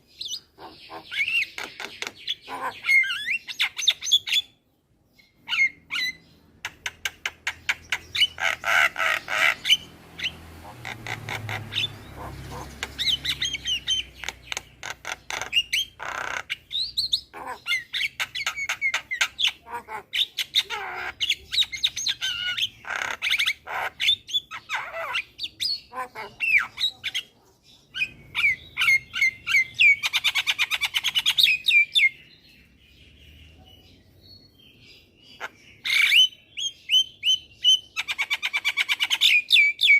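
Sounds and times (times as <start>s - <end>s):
mynas chattering and squawking: 0.3s - 4.4s, 5.5s - 31.7s.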